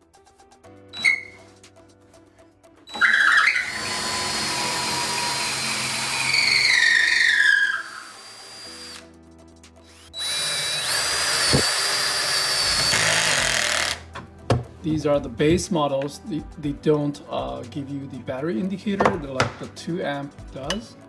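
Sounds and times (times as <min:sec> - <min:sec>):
cordless drill whining: 0:01.0 - 0:01.5, 0:02.9 - 0:09.1, 0:09.9 - 0:14.2.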